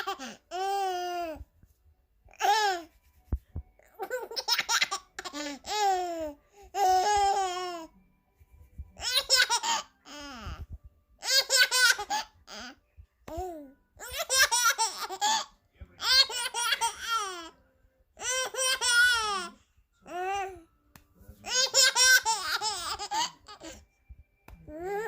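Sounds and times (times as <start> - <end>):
baby giggling: 0.0 - 1.0, 9.0 - 10.4, 11.2 - 12.8, 14.0 - 17.5, 21.5 - 23.8.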